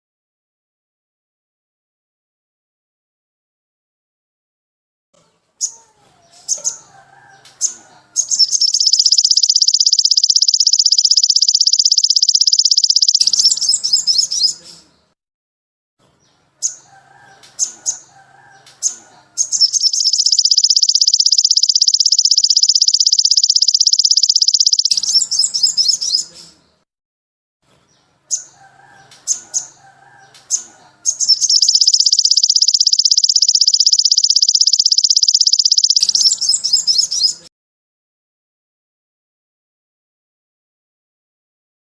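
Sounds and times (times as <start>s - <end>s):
bird chirps: 5.6s - 14.9s, 16.2s - 26.6s, 28.3s - 37.5s
songbird buzzing trill: 8.3s - 14.5s, 19.5s - 26.2s, 31.1s - 37.3s.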